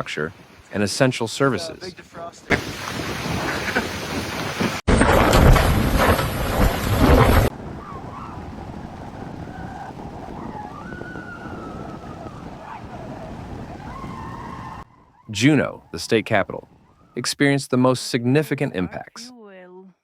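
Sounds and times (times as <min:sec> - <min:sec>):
wind buffeting microphone: 0:01.7 - 0:17.6.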